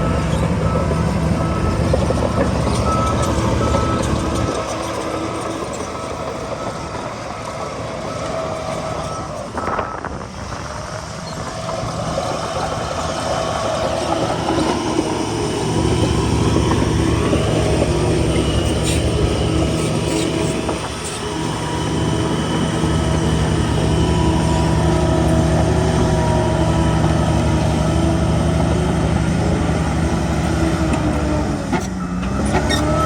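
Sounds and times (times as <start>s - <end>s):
heavy diesel engine under load: 0.0s - 33.0s.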